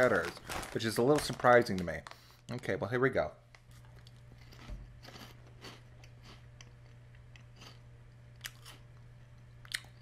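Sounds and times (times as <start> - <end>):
person chewing crunchy snack: 3.7 - 9.0.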